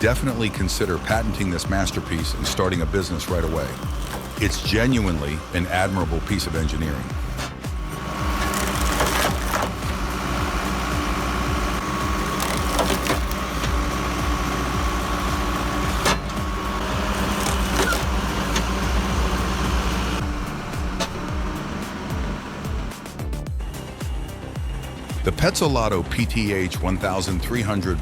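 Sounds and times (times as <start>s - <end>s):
wood cracking as it splits: 0.0s - 5.5s, 6.9s - 23.1s
wood splitting machine engine hum: 0.0s - 27.2s.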